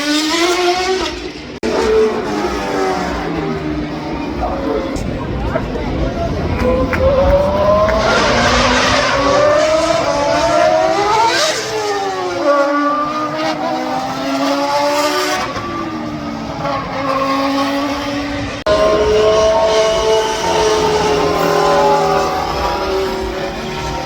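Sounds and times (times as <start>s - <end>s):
racing car accelerating past: 6.1s - 24.0s.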